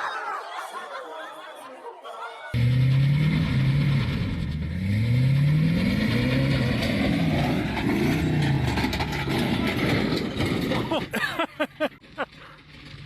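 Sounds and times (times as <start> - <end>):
vehicle engine revving: 2.6 - 13.0.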